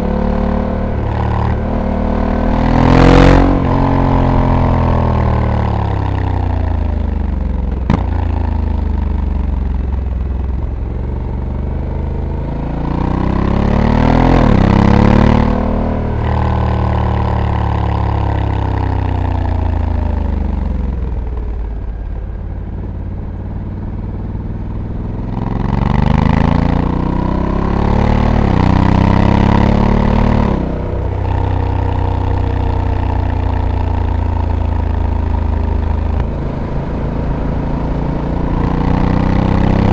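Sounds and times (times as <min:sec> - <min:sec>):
motorcycle engine accelerating: 0:00.0 - 0:39.9
wind noise: 0:35.6 - 0:39.9.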